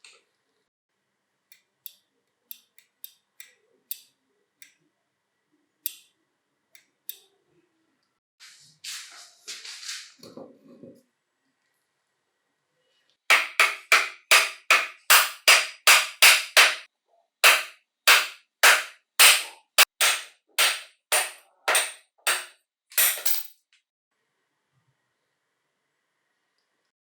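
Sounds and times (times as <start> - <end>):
hammer striking metal: 13.3 - 23.5.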